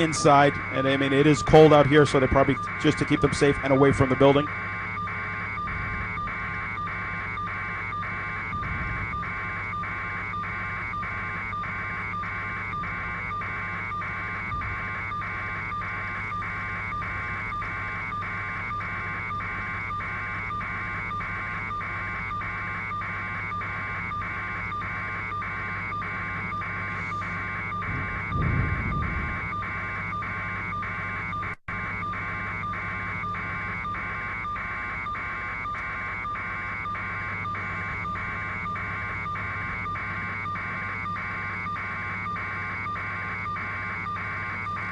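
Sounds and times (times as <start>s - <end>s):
helicopter rotor drone: 0.0s - 44.9s
brief low rumble: 27.9s - 29.4s.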